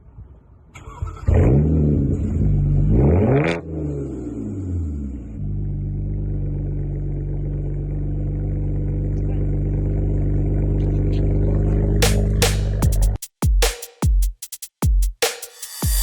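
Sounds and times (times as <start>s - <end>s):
car engine running: 5.3s - 13.2s.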